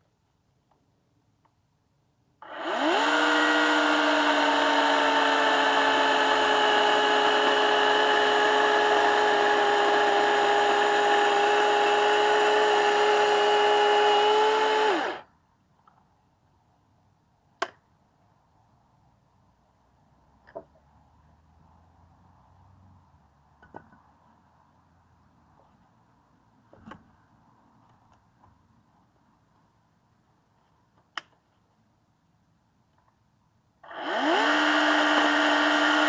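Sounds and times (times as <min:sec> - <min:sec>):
power tool motor running: 0:02.4 - 0:15.2, 0:33.9 - 0:36.0.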